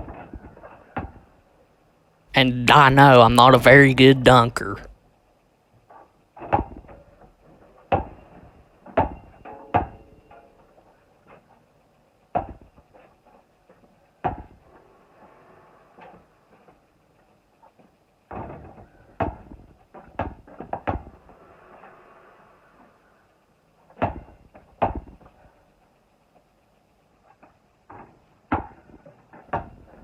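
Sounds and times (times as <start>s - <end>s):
basketball bouncing thumps: 27.9s - 29.8s.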